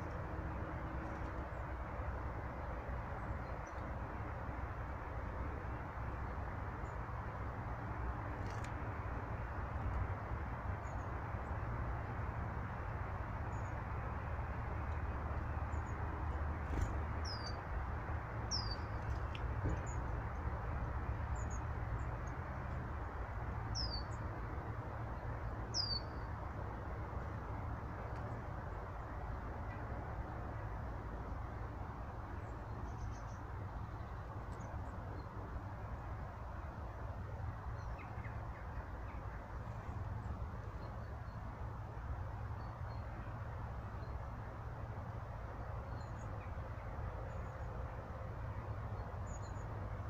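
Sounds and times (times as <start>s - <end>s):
low rushing background noise: 0.0s - 50.0s
small birds chirping: 15.3s - 17.8s, 18.4s - 20.5s, 23.6s - 24.3s, 25.1s - 26.4s.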